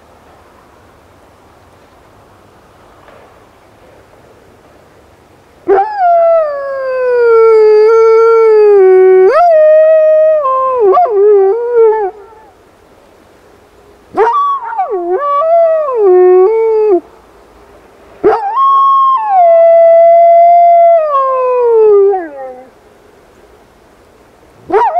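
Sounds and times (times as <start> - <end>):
dog howling: 5.7 - 12.6, 14.2 - 17.0, 18.2 - 22.7, 24.7 - 24.9.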